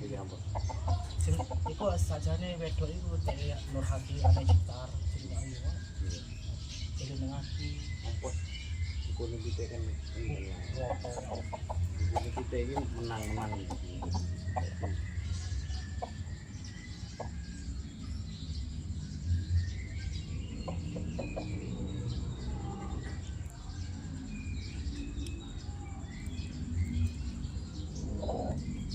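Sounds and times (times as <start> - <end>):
chickens clucking: 0.0 - 28.9
small birds chirping: 0.0 - 28.9.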